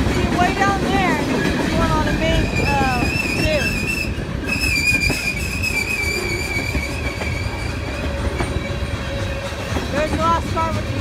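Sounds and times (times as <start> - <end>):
train wheels rumbling on rail: 0.0 - 11.0
high wheel squeal: 2.4 - 9.7
lower squeal tone: 2.5 - 8.8.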